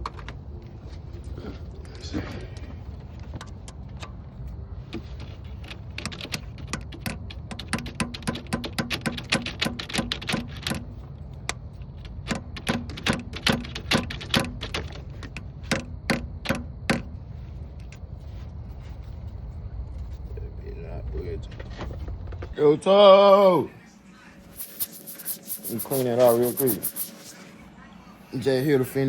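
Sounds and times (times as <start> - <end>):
low background rumble: 15.1 - 24.6.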